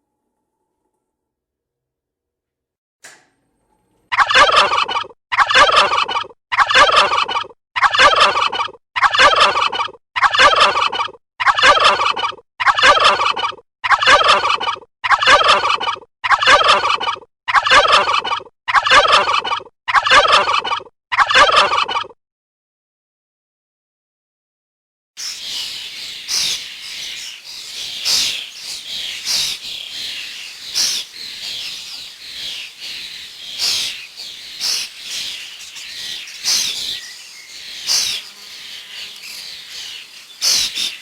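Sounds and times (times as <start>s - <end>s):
bird call rattling: 25.2s - 41.0s.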